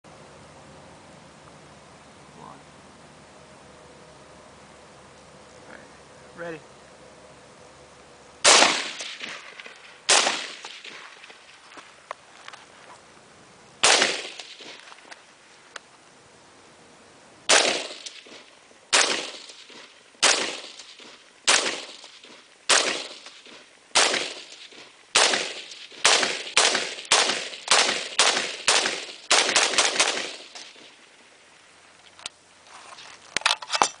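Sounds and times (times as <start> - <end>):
rifle shots: 8.4 - 11.6, 13.8 - 14.9, 17.5 - 31.0.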